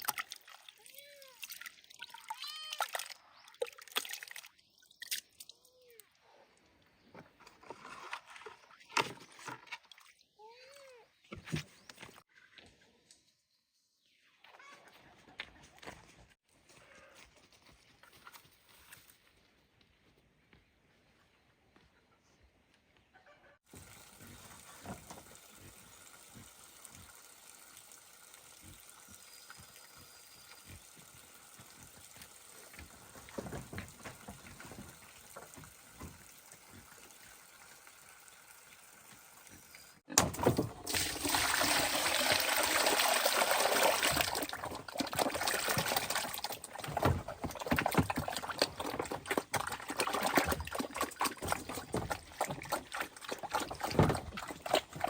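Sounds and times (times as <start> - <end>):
water pouring and splashing: 0.0 - 5.5, 23.7 - 55.0.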